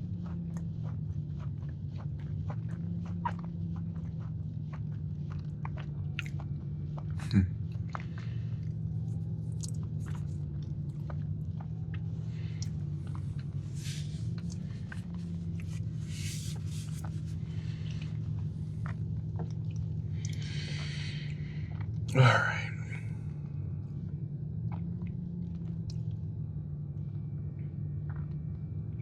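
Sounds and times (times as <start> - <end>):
chewing and mouth clicks: 0.0 - 22.2, 22.9 - 26.4, 27.0 - 29.0
steady low hum: 0.0 - 29.0.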